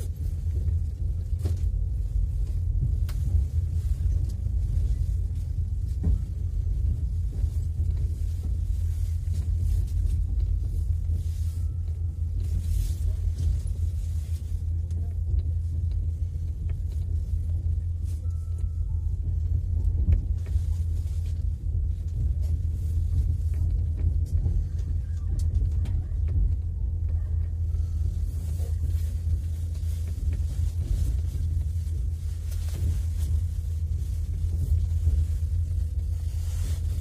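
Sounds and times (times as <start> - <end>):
railway coach rumbling on track: 0.0 - 37.0.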